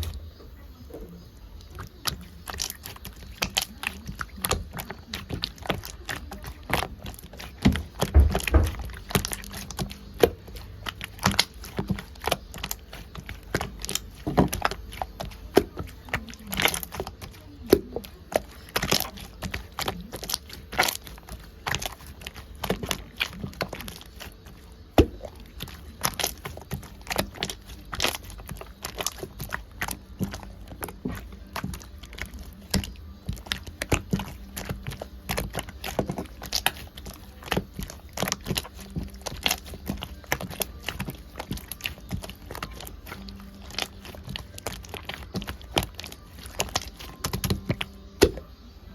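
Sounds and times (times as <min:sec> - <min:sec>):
slime squished by hand: 0:01.6 - 0:48.5.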